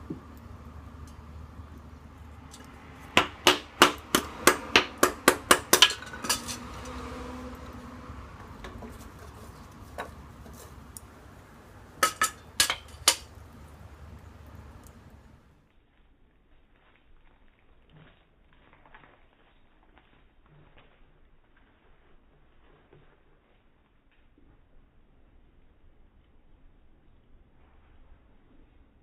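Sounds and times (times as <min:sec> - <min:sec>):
sharp metallic knocks and clinks: 0:02.5 - 0:07.0, 0:12.0 - 0:13.3.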